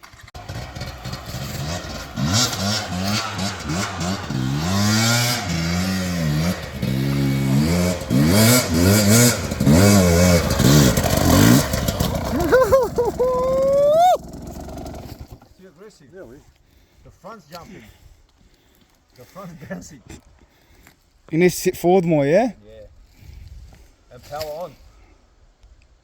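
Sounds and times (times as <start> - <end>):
dirt bike engine revving: 0.0 - 15.5.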